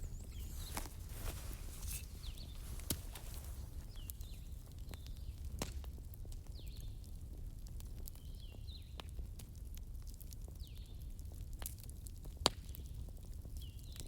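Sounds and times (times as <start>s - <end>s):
birds chirping: 0.0s - 4.5s
wood fire crackling: 0.0s - 13.9s.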